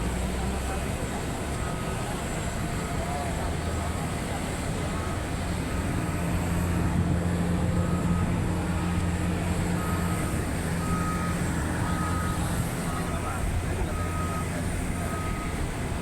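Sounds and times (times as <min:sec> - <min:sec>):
engine rumble: 0:00.0 - 0:16.0
reversing alarm beeps: 0:01.5 - 0:03.9, 0:04.8 - 0:06.0, 0:07.8 - 0:15.7.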